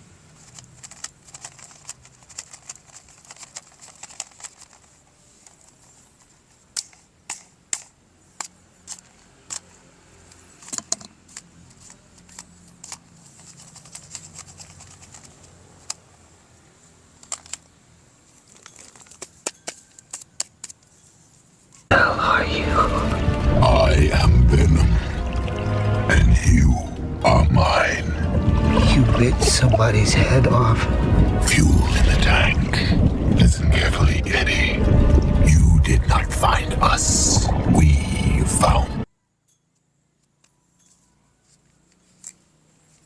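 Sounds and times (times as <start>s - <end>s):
plastic toy parts clicking: 0.4s - 9.7s, 10.6s - 16.0s, 17.2s - 17.7s, 18.5s - 20.9s.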